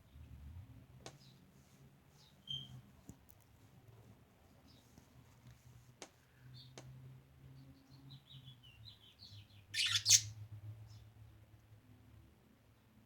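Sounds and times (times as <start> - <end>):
budgerigars chirping: 9.8 - 10.3
loud harsh bird call: 9.8 - 10.3.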